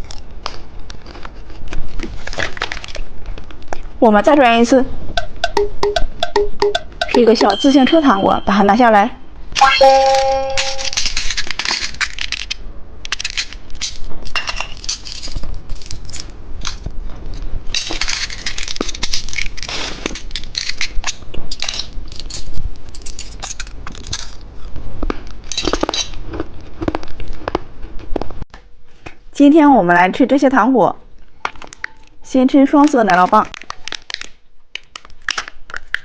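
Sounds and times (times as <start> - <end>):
hard candy crunching: 17.8 - 28.3, 33.5 - 36.0.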